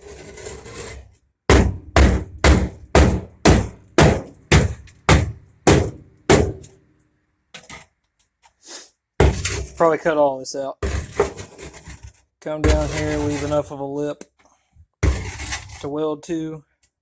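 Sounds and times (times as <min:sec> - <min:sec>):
brief scrape: 0:08.6 - 0:09.0.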